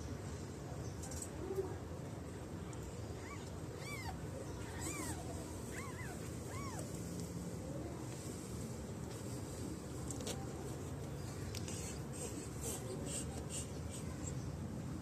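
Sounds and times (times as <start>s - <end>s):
kittens mewing: 3.2s - 6.9s.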